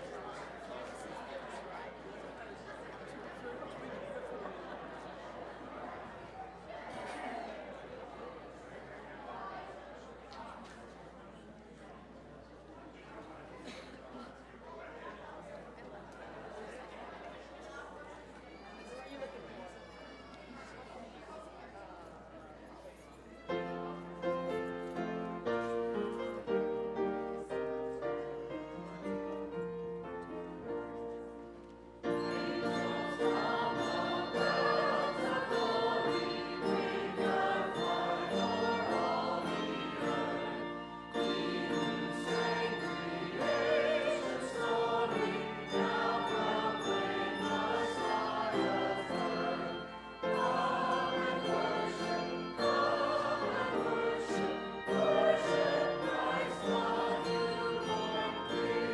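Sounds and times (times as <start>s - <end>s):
choir singing church music: 0.0s - 2.0s, 23.6s - 58.9s.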